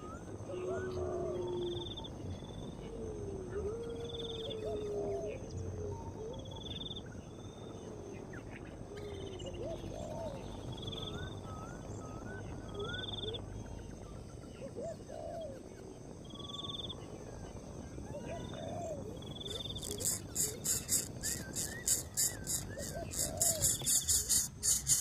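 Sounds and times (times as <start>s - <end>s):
insects: 0.0s - 25.0s
low gliding bird notes: 18.2s - 25.0s
high trilled bird call: 19.4s - 25.0s.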